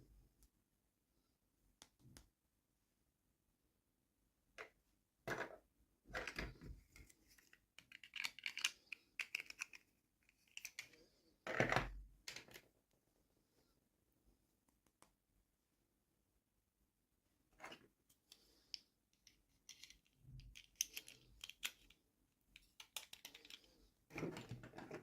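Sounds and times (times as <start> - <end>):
toy packaging crinkling: 7.8 - 9.8.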